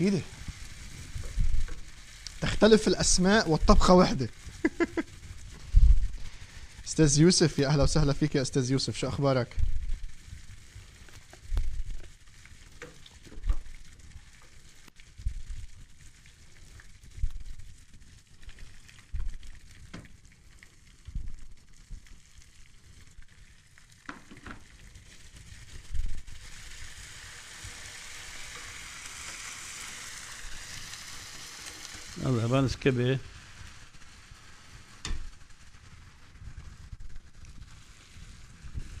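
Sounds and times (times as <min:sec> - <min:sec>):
garlic sizzling in a pan: 0:00.0 - 0:39.0.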